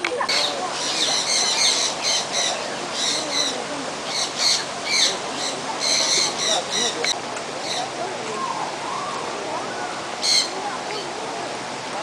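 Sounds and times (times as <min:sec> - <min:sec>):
birds squawking: 0:00.1 - 0:07.9, 0:08.9 - 0:10.6.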